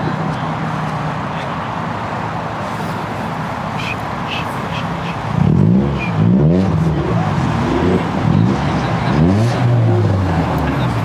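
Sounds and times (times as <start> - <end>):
car engine revving: 3.3 - 11.0.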